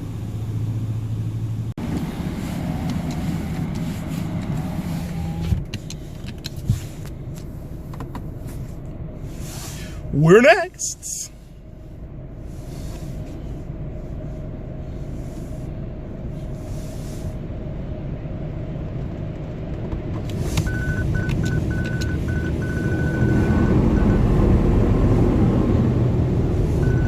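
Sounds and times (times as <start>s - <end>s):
car wash rushing noise: 0.0s - 5.6s
car engine rumble in cabin: 0.0s - 27.0s.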